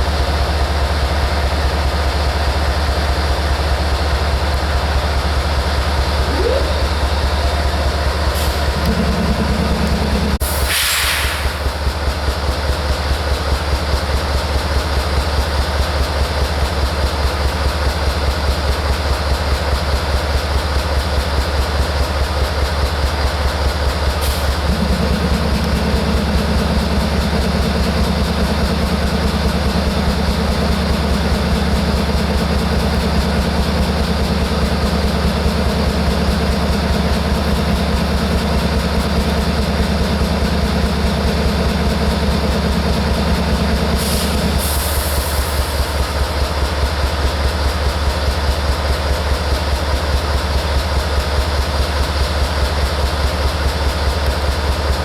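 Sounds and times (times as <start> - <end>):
diesel locomotive idling: 0.0 - 55.0
high steady tone: 6.2 - 10.4, 24.5 - 43.8.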